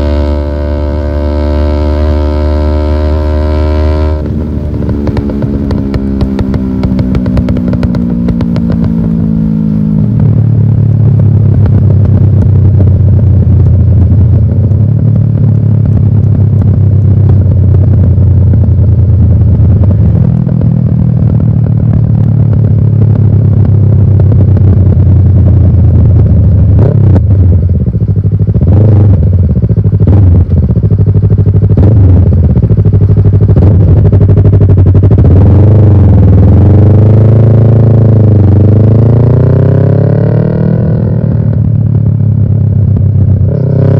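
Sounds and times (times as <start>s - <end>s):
motorcycle engine idling and revving: 0.0s - 43.9s.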